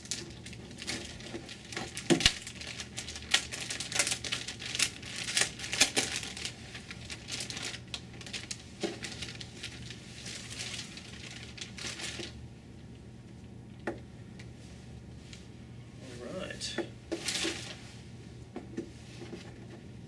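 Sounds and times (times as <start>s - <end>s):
plastic packaging crinkling: 0.0s - 12.4s, 17.1s - 17.9s.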